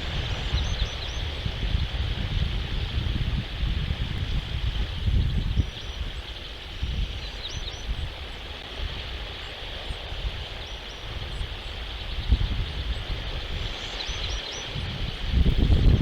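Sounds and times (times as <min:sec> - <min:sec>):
steady high hiss: 0:00.0 - 0:16.0
wind buffeting microphone: 0:00.0 - 0:16.0
faint high bird chirps: 0:13.8 - 0:15.2.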